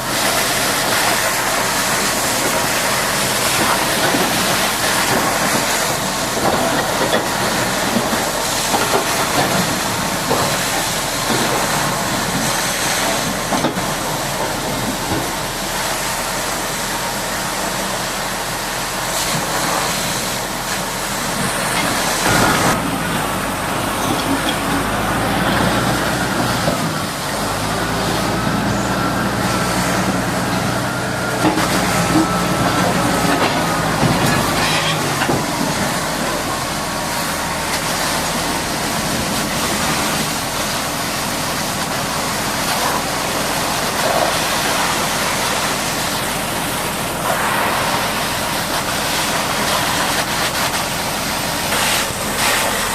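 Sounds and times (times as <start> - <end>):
high-pressure water jet hissing: 0.0 - 52.9
low engine hum: 0.0 - 52.9.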